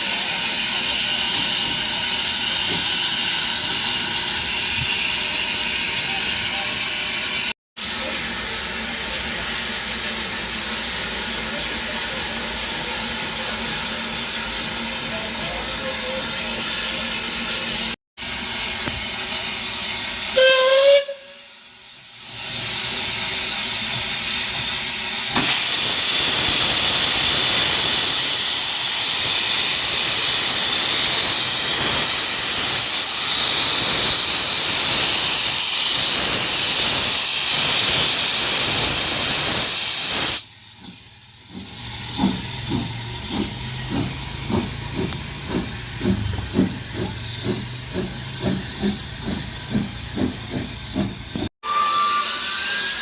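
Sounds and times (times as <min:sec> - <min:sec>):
steam hissing from engine: 0:00.0 - 0:51.5
slow regular beat: 0:40.8 - 0:51.5.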